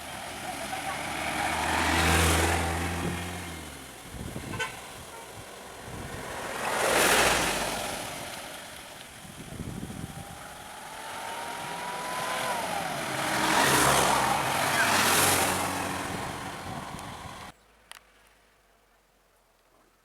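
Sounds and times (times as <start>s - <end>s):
road vehicles passing: 0.0s - 18.0s
heavy vehicle low drone: 9.1s - 17.5s.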